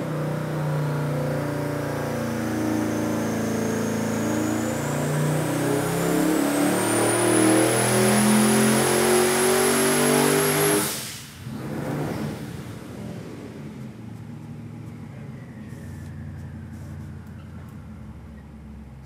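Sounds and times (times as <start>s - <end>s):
engine revving at full throttle: 0.0s - 13.7s.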